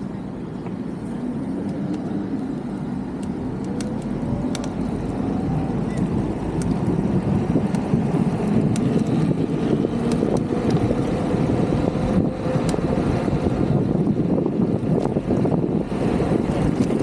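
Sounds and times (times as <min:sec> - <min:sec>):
tyre and road rumble: 0:00.0 - 0:17.0
wind rushing over microphone: 0:00.0 - 0:17.0.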